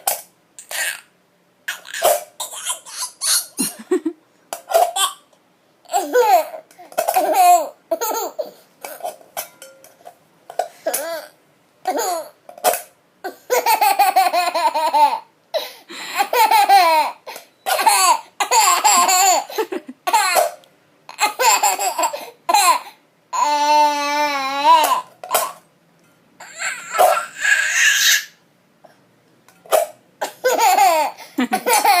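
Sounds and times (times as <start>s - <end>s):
baby laughing: 1.7s - 5.3s, 5.9s - 9.1s, 11.9s - 12.4s, 13.3s - 15.3s, 16.2s - 22.8s, 26.4s - 28.4s, 30.2s - 32.0s.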